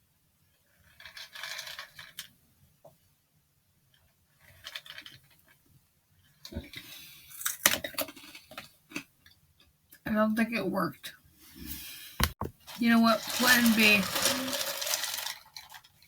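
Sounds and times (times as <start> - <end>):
cereal rattling and spilling: 12.6 - 16.0.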